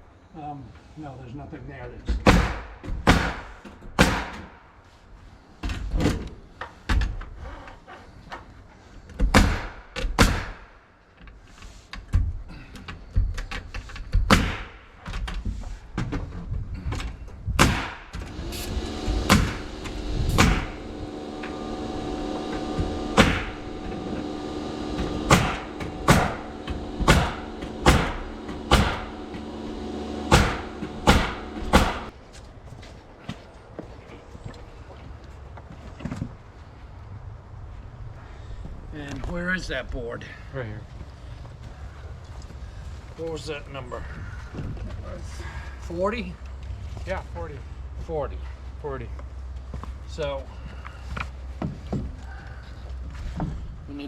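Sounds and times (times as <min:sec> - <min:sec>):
nail gun firing: 0:02.3 - 0:04.5, 0:09.2 - 0:10.7, 0:14.1 - 0:14.8, 0:17.6 - 0:21.6, 0:22.5 - 0:24.1, 0:24.9 - 0:29.5, 0:30.2 - 0:32.1
motor humming: 0:18.2 - 0:32.2.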